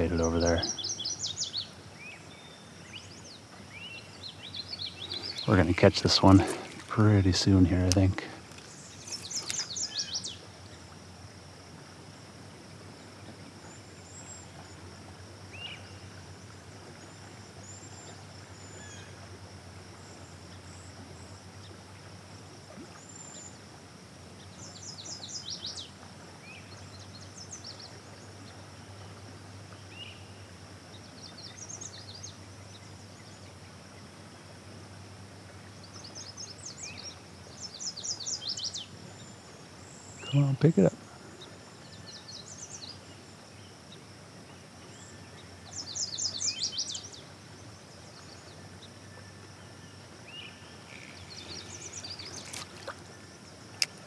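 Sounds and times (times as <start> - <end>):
birds chirping and trilling: 0.0 - 10.4, 35.9 - 43.0, 44.9 - 47.2, 50.2 - 54.0
steady low hum: 0.0 - 46.2, 47.0 - 54.0.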